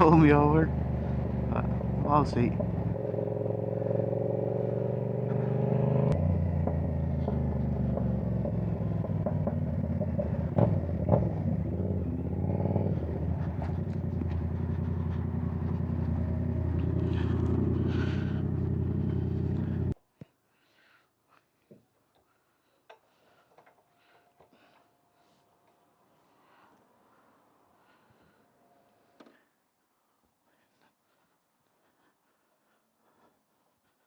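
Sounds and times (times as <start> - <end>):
motorcycle engine through loud exhaust: 0.0 - 20.0
sharp exhaust pops: 6.1 - 11.8.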